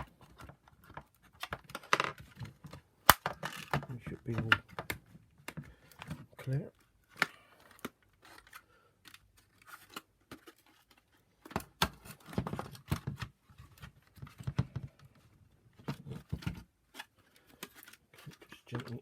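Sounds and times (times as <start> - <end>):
plastic housing clicking and knocking: 0.1 - 6.3.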